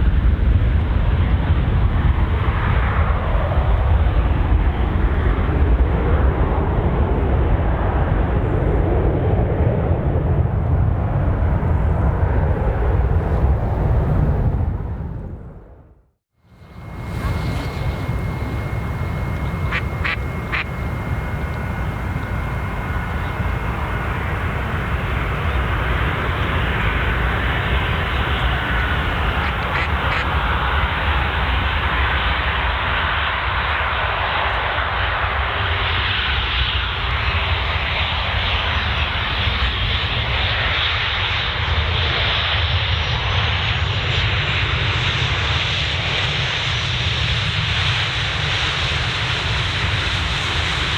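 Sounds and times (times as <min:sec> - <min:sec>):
jet engines rushing: 0:16.5 - 0:42.6.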